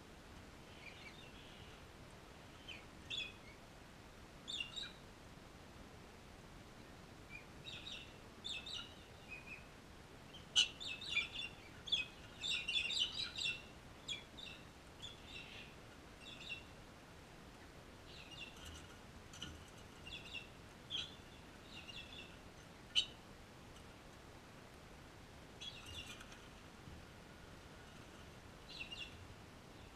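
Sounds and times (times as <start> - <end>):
birds chirping and chattering: 0.7 - 1.9, 2.5 - 3.6, 4.5 - 5.0, 7.3 - 9.7, 10.3 - 16.8, 17.6 - 24.0, 25.6 - 26.7, 27.6 - 29.9.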